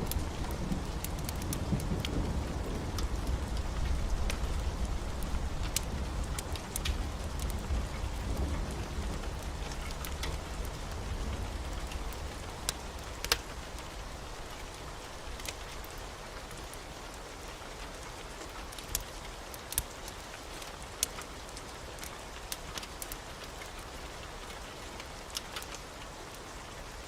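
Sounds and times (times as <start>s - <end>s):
thunder rumble: 0.0s - 15.1s
heavy rain: 0.0s - 27.0s.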